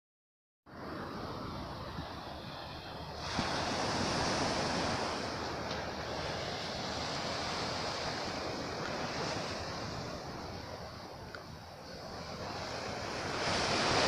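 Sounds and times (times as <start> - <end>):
sea waves breaking on shore: 0.7 - 14.0.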